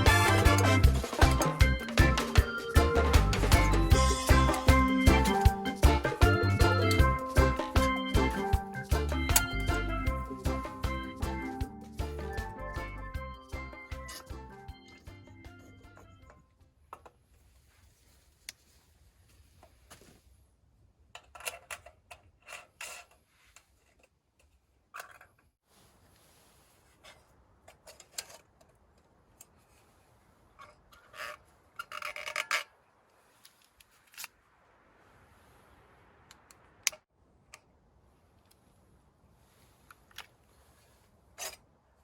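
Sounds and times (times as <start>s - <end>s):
rubbing and scraping handling noises: 0.0s - 10.9s, 15.6s - 34.5s, 38.0s - 41.8s.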